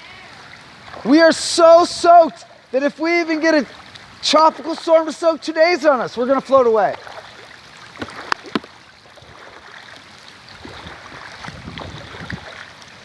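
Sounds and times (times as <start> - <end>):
rain and water noise: 0.0 - 13.0.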